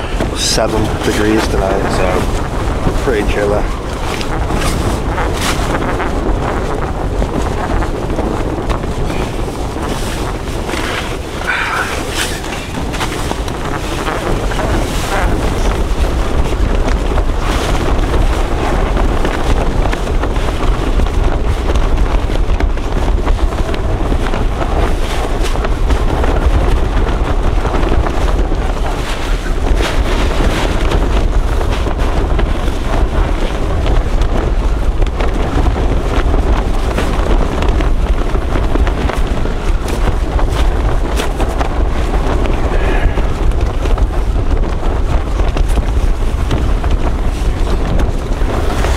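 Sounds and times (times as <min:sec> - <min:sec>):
tent fabric flapping: 0:00.0 - 0:48.9
wind gusting against microphone: 0:00.0 - 0:48.9.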